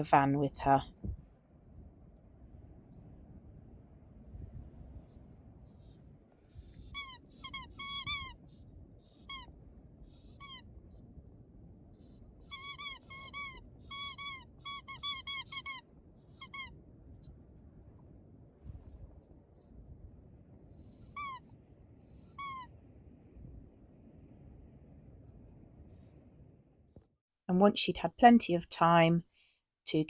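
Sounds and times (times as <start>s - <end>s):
squeaky toy squeaking: 6.8s - 8.4s, 9.2s - 9.5s, 10.3s - 10.6s, 12.5s - 15.8s, 16.4s - 16.7s, 21.2s - 21.4s, 22.4s - 22.7s.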